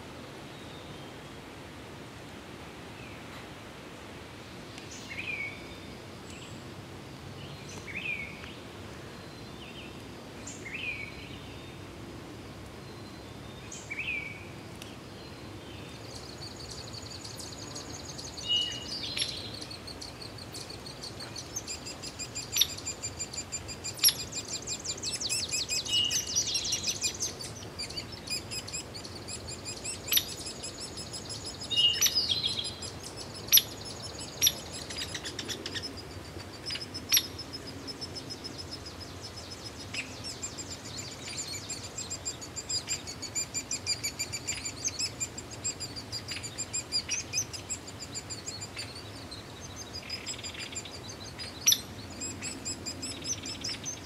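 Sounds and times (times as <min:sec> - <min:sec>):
birds chirping and trilling: 0:15.8 - 0:54.0.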